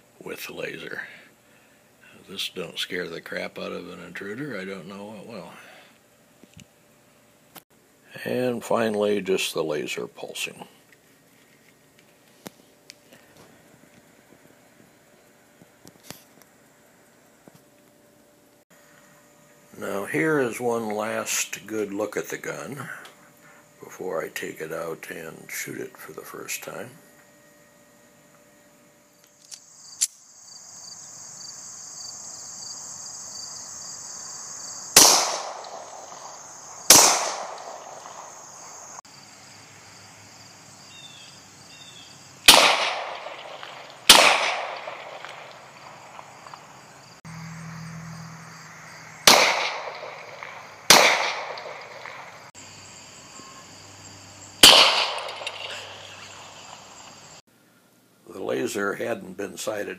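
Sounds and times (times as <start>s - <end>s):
pistol shots echoing: 35.0s - 38.5s, 42.5s - 46.2s, 49.2s - 52.4s, 54.6s - 56.7s.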